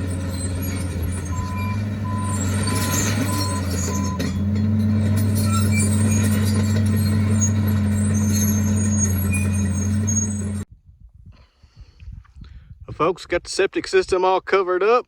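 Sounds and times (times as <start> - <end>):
diesel engine humming: 0.0 - 10.7
thin high squeaks: 0.0 - 10.7.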